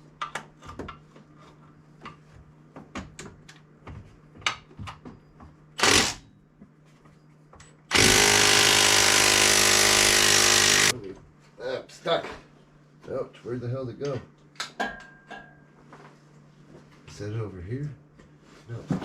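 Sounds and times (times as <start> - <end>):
impact wrench hammering: 5.8 - 6.2, 7.9 - 10.9.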